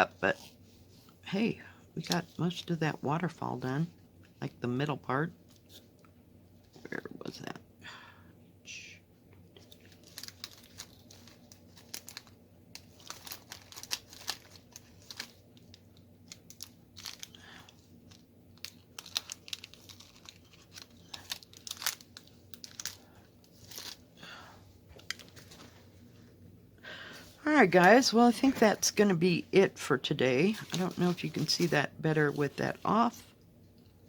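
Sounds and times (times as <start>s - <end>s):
plastic film crinkling: 9.6s - 24.1s, 24.9s - 25.9s, 30.4s - 33.0s.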